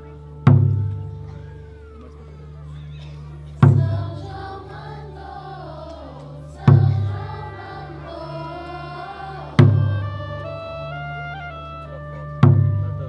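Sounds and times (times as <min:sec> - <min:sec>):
group of voices singing: 0:03.5 - 0:11.2
deep drum strikes: 0:03.6 - 0:05.0, 0:06.6 - 0:08.1, 0:09.5 - 0:10.5, 0:12.4 - 0:13.0.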